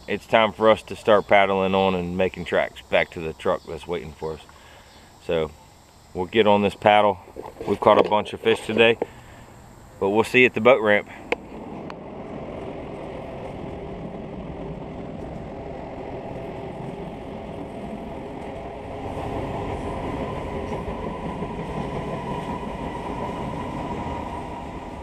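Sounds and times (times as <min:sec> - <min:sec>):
steady ringing tones: 0:00.0 - 0:25.0
train rumbling over bridge: 0:11.5 - 0:25.0.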